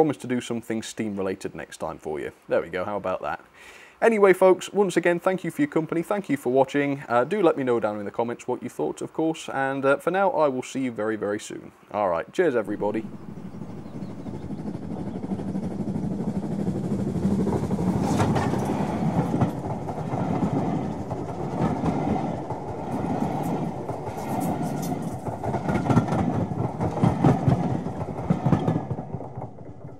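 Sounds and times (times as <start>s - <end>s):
train passing: 4.0s - 29.9s
wheels clattering over track: 12.8s - 29.9s.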